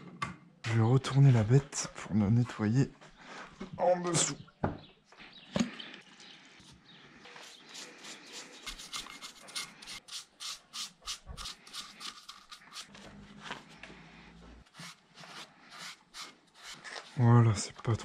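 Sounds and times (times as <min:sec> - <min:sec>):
cloth rag scrubbing metal: 0:07.3 - 0:13.6, 0:14.7 - 0:17.6.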